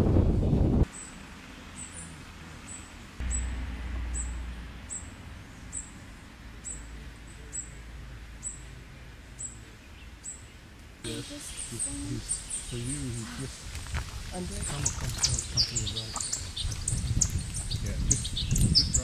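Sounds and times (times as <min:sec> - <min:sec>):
low wind rumble on microphone: 0:00.0 - 0:01.0, 0:10.9 - 0:19.0
bird chip notes: 0:03.2 - 0:08.8.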